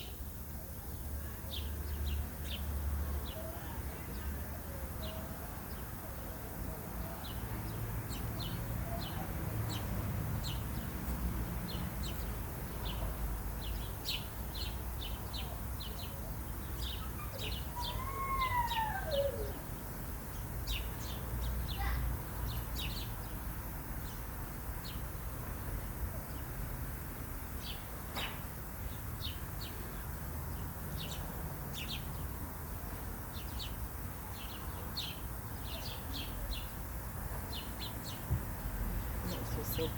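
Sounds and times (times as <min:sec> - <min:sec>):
small birds chirping: 0:07.0 - 0:26.6, 0:27.6 - 0:39.9.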